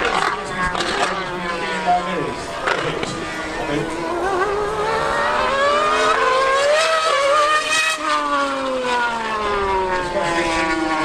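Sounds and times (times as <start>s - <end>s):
racing engines at full throttle: 0.0s - 11.0s.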